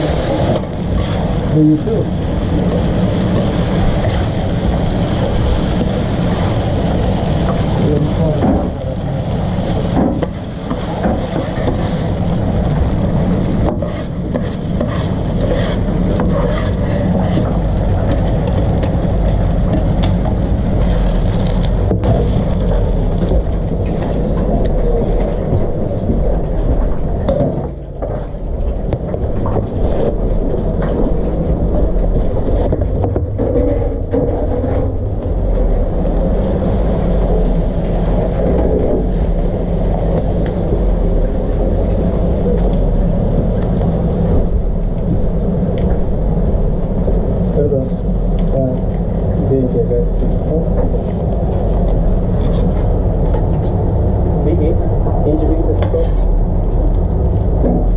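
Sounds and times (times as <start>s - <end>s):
road and engine rumble: 0.0s - 57.9s.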